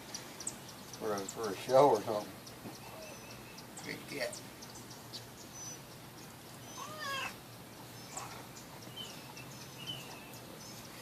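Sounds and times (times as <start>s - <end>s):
faint bird chirps: 0.0s - 11.0s
cat meowing: 6.7s - 7.4s.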